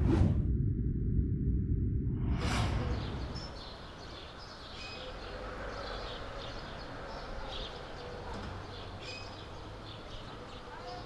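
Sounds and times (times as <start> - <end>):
low outdoor hum: 0.0 - 5.6
birds chirping: 2.8 - 11.0.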